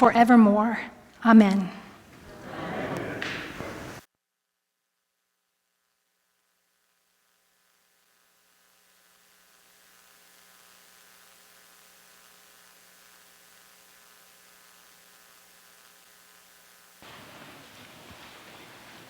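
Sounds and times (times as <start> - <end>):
electrical hum with hiss: 0.0 - 4.1, 5.3 - 19.0.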